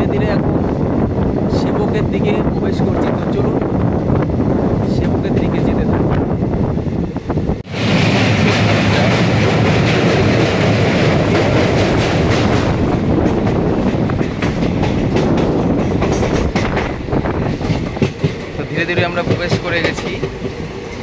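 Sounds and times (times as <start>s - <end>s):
train rumbling over bridge: 0.0s - 21.0s.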